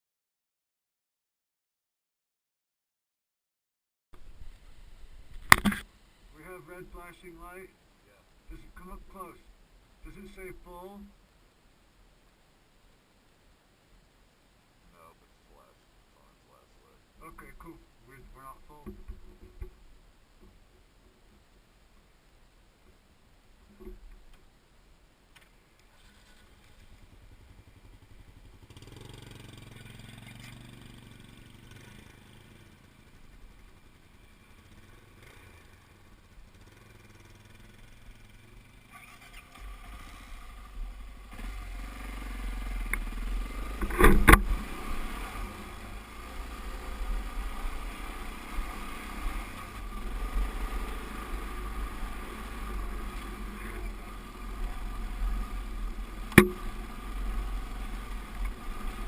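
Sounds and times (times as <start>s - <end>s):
vehicle engine running: 26.4s - 59.0s.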